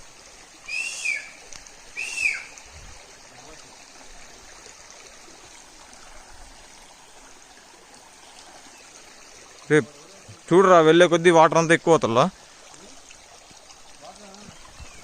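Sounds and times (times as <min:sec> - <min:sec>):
stream running over rocks: 0:00.0 - 0:15.0
short high rising-falling calls: 0:00.6 - 0:02.6.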